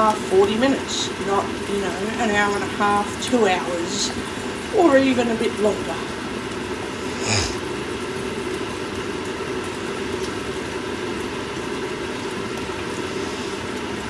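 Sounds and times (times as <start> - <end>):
sausages frying in a pan: 0.0 - 14.0
kitchen hum: 6.9 - 7.7.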